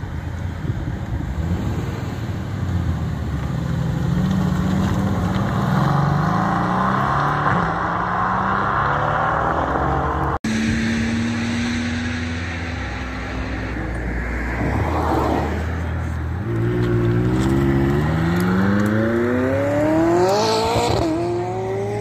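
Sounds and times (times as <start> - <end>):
car engine accelerating: 1.2 - 22.0.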